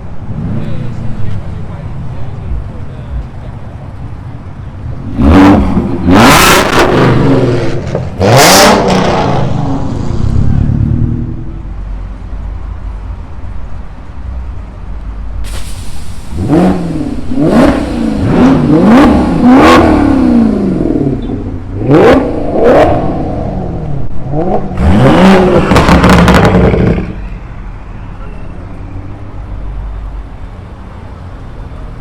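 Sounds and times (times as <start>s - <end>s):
car engine idling and revving: 0.0s - 32.0s
sharp exhaust cracks: 24.8s - 27.3s.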